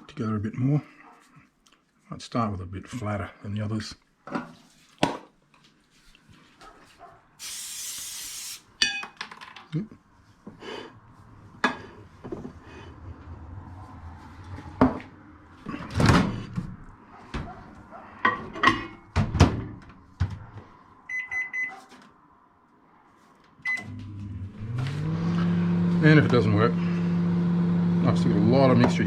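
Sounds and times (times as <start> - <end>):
keypad beeps: 21.1 - 21.8, 23.6 - 23.9
microwave oven humming: 23.7 - 28.5.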